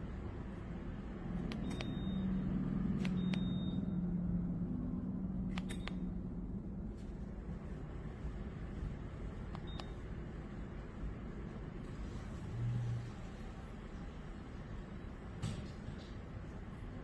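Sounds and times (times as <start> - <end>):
button beeps with clicks: 1.5 - 2.4, 3.0 - 4.0, 5.5 - 6.1, 9.5 - 10.0.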